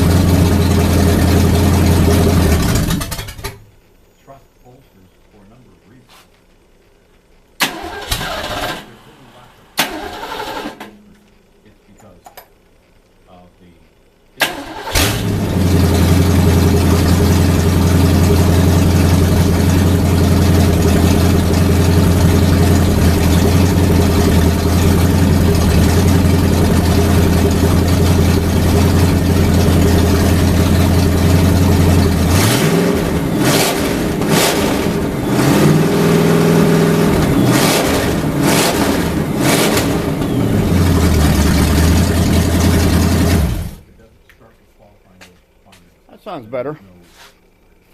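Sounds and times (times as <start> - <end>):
car engine idling and revving: 0.0 - 3.6, 14.9 - 43.8.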